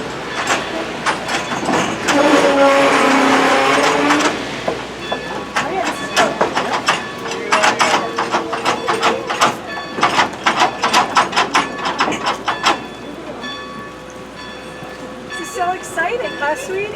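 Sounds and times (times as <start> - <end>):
train wheels clacking: 0.0 - 16.9.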